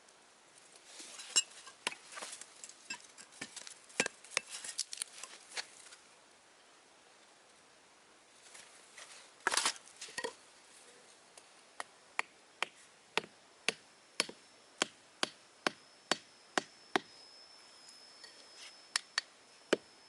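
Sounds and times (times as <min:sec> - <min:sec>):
faint thin high tone: 0:15.8 - 0:20.0.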